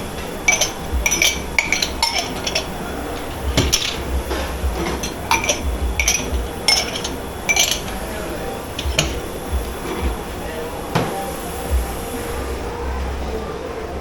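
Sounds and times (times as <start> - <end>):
low steady hum: 0.0 - 10.6
crockery and cutlery clinking: 0.0 - 11.3.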